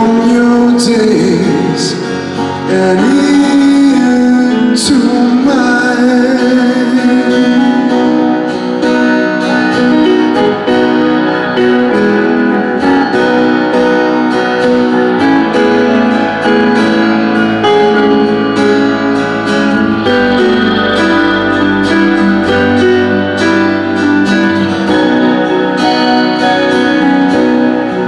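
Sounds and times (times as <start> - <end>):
strummed guitar chords: 0.0 - 28.0
low bass notes: 8.9 - 28.0.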